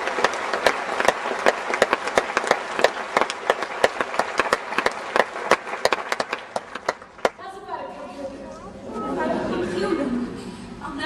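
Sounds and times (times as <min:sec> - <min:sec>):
sharp individual hand claps: 0:00.0 - 0:07.4
audience applauding: 0:00.0 - 0:07.5.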